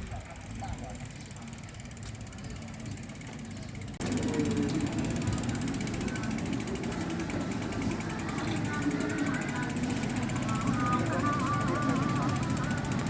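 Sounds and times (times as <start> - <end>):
bicycle freewheel ticking: 0.0 - 13.0.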